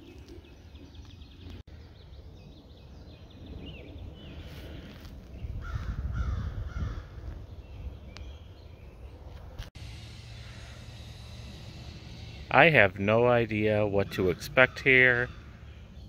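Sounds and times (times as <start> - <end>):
low wind rumble on microphone: 0.0 - 12.6
birds calling: 0.0 - 16.0.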